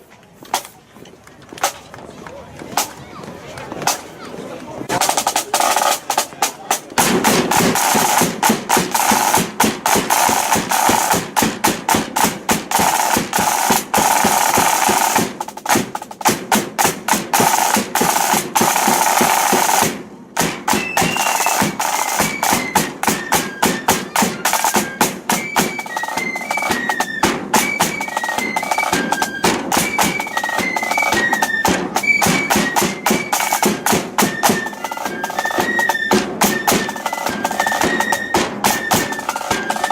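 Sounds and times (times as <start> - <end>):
snare drums beating: 4.9 - 39.9
flute melody: 7.2 - 11.2, 20.6 - 39.9.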